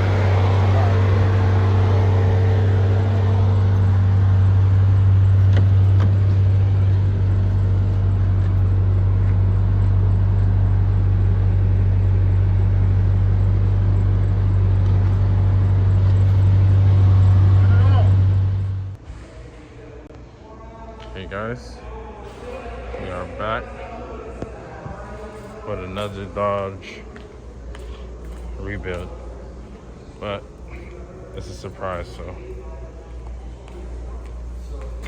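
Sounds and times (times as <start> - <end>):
vehicle engine rumbling: 0.0 - 19.9.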